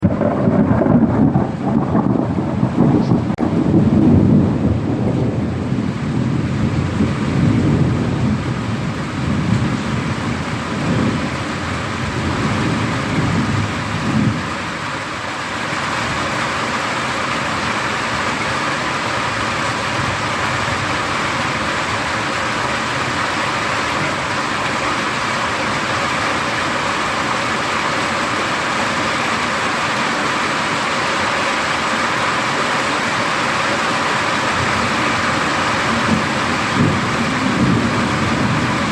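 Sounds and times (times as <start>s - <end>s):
thunder rumbling: 0.0s - 15.0s, 34.2s - 38.9s
heavy rain: 0.0s - 38.9s.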